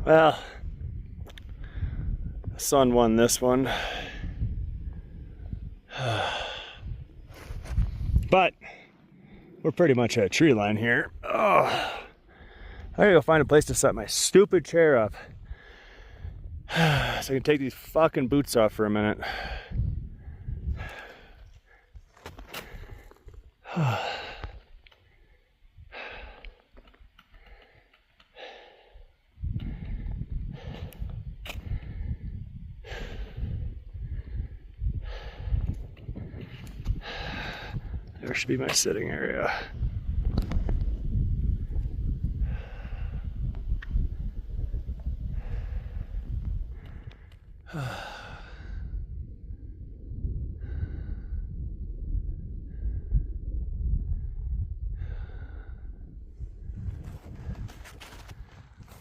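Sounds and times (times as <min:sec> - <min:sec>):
person breathing heavily: 0:01.5 - 0:02.5, 0:03.6 - 0:09.6, 0:11.1 - 0:13.0, 0:15.1 - 0:17.4, 0:19.2 - 0:38.2, 0:41.5 - 0:49.1, 0:50.5 - 0:51.6, 0:54.2 - 0:59.0
groaning sigh: 0:05.9 - 0:07.0, 0:11.2 - 0:12.5, 0:16.7 - 0:17.2, 0:23.6 - 0:24.7, 0:47.6 - 0:48.9
low rumbling noise: 0:39.5 - 0:59.0.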